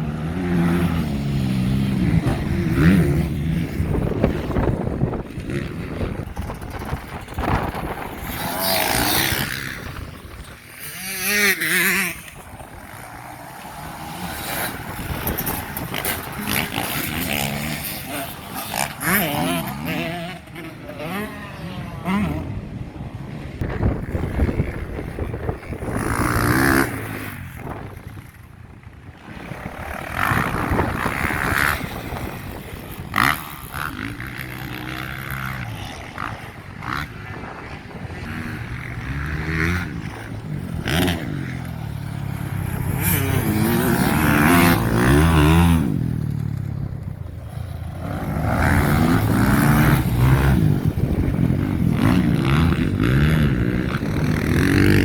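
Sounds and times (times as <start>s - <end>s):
motocross bikes racing past: 0.0s - 55.0s.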